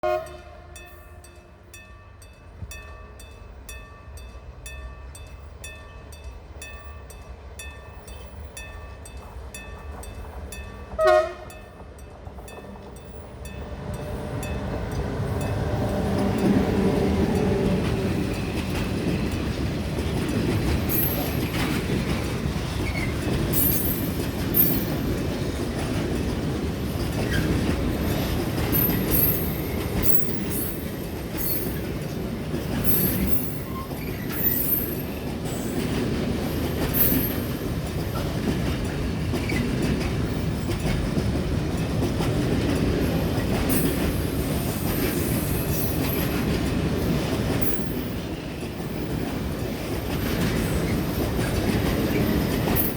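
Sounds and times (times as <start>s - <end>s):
freight train wheels rumbling: 0.0s - 52.9s
clatter over rail joints: 11.8s - 52.9s.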